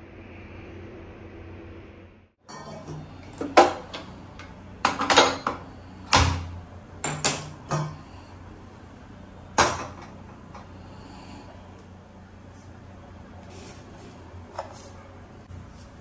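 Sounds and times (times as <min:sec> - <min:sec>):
dishes and utensils clinking: 0:02.4 - 0:05.7.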